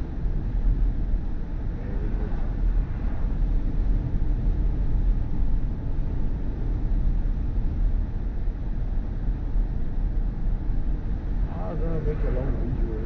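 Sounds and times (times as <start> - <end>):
road and tyre rumble in car: 0.0 - 13.0.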